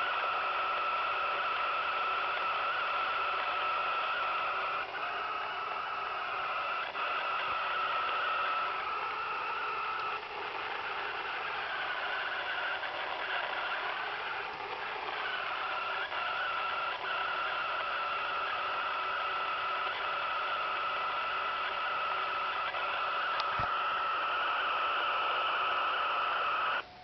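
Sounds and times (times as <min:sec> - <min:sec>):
radio hum of held tones: 0:00.0 - 0:27.0
static hiss: 0:00.0 - 0:27.0
faint clicks: 0:09.9 - 0:10.2, 0:23.2 - 0:23.8.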